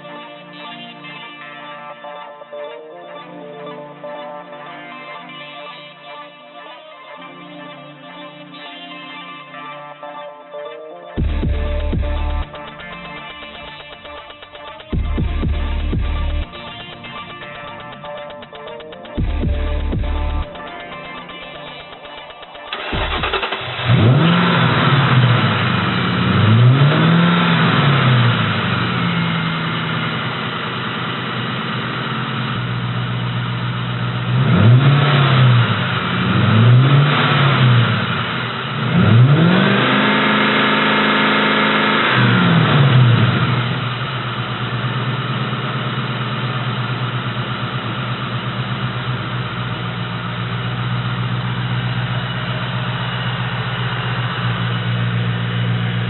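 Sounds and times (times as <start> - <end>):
car engine idling: 11.2 - 56.0
car engine revving: 11.2 - 56.0.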